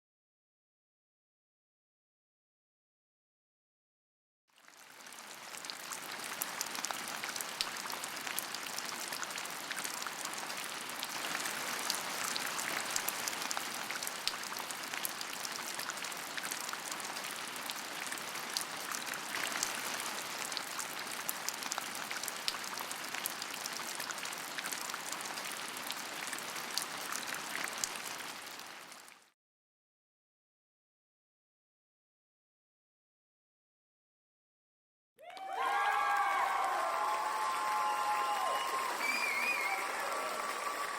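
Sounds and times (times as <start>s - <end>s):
steady rain falling: 4.6s - 29.3s, 35.4s - 40.9s.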